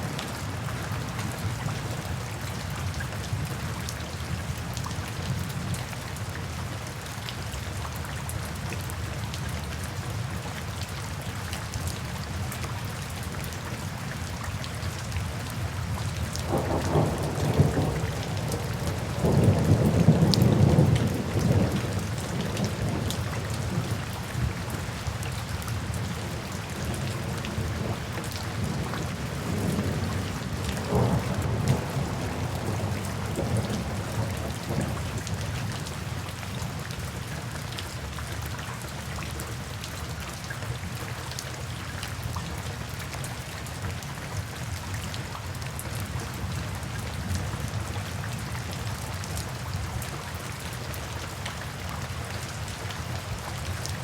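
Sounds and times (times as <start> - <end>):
steady rain: 0.0 - 54.0
thunder rumbling: 16.5 - 24.5, 28.6 - 35.2.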